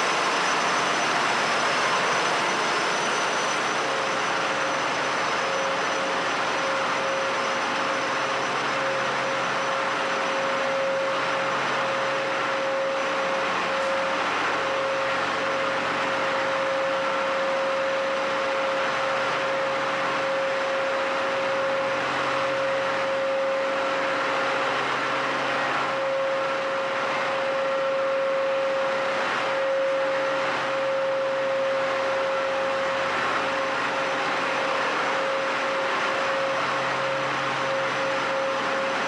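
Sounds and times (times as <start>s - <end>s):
engine room machinery din: 0.0s - 15.9s
steady machine whine: 0.0s - 39.0s.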